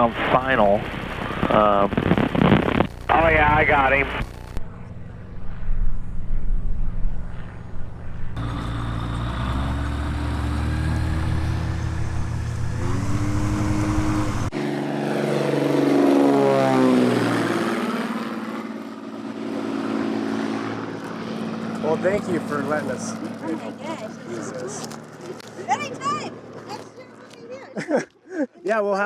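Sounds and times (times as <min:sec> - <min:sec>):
propeller airplane engine: 0:00.0 - 0:27.8
light plane passing low: 0:04.6 - 0:27.7.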